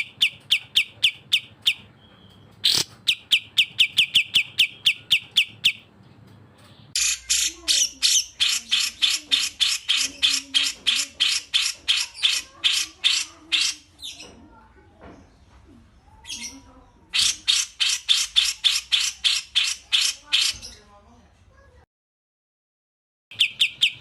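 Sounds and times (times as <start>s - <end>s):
songbird harsh repeated notes: 2.6s - 5.9s, 7.0s - 14.2s, 17.2s - 20.7s, 23.3s - 24.0s.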